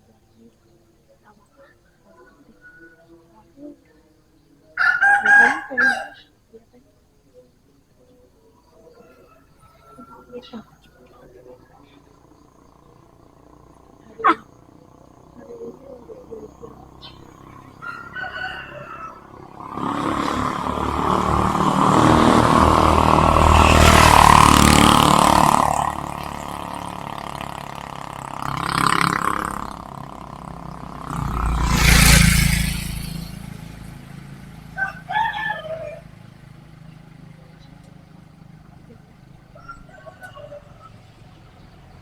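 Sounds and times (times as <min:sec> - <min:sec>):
vehicles passing by: 0:00.0 - 0:42.0
rooster crowing: 0:04.8 - 0:06.3, 0:08.9 - 0:10.6, 0:17.2 - 0:26.0, 0:34.6 - 0:36.2, 0:39.4 - 0:41.2.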